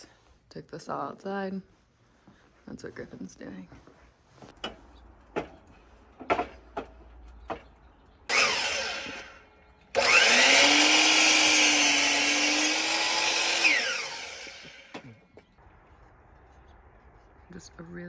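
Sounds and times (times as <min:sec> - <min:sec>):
wood knocking: 0:04.6 - 0:07.8
power saw cutting wood: 0:08.3 - 0:15.2.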